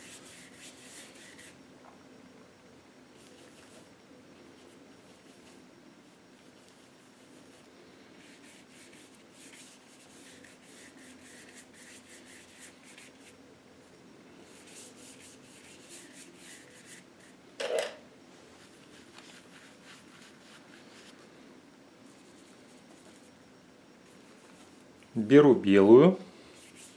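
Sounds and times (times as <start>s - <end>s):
paintbrush strokes on canvas: 0.0s - 1.6s, 4.6s - 13.4s, 14.4s - 17.4s, 18.4s - 21.3s, 26.4s - 26.9s.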